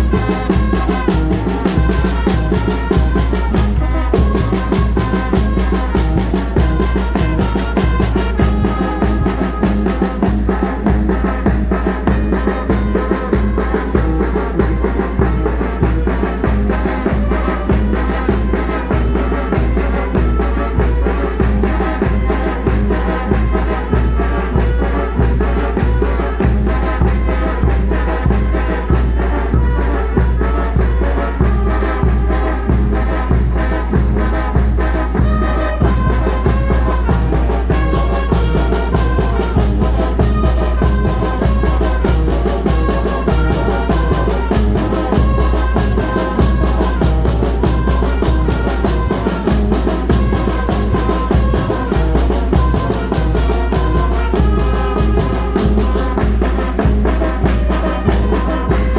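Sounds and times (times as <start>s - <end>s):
brass band playing: 0.0s - 58.9s
cymbal strokes: 10.4s - 35.8s.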